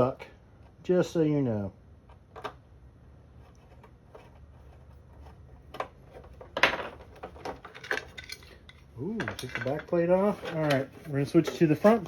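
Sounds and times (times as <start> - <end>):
plastic parts clattering: 5.6 - 12.0.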